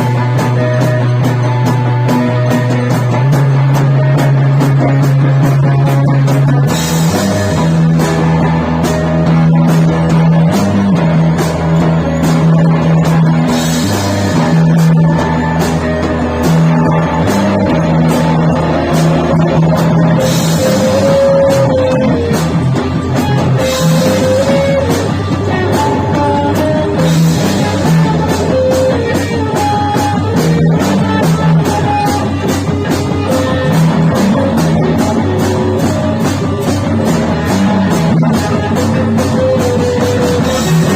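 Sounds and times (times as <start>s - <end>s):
drum kit groove: 0.0s - 40.9s
electric guitar: 0.0s - 40.9s.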